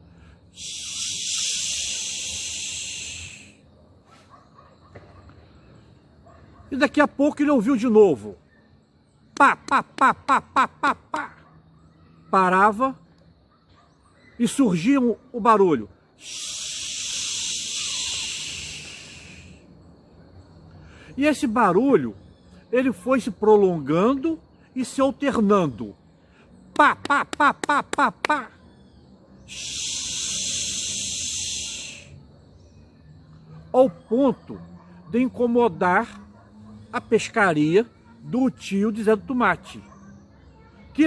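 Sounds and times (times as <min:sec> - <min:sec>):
person hissing through teeth: 0:00.6 - 0:03.6, 0:16.2 - 0:19.6, 0:29.5 - 0:32.1.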